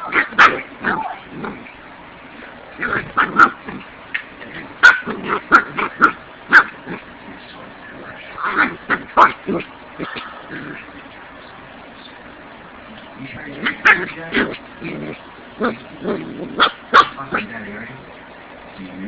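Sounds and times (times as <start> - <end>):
puppy yipping and barking: 0.0 - 1.3, 2.8 - 6.8, 8.4 - 10.2, 16.5 - 17.5.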